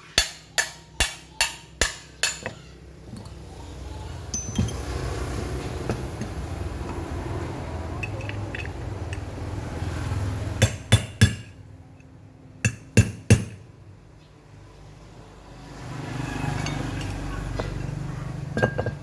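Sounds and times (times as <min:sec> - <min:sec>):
sharp metallic knocks: 0:00.1 - 0:02.7.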